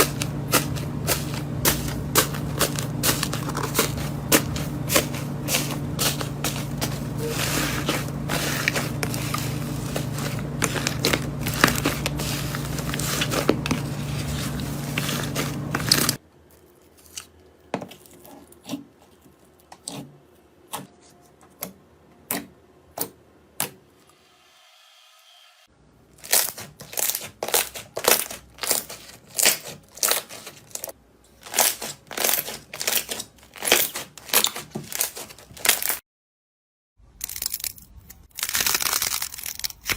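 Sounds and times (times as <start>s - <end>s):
low hum: 0.0s - 16.2s
slime crackling and popping: 26.2s - 30.9s, 31.5s - 36.0s, 38.4s - 39.9s.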